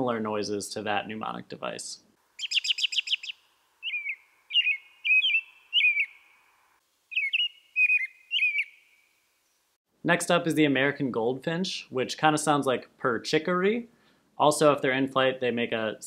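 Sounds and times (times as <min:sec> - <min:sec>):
robin singing: 0:02.4 - 0:09.8.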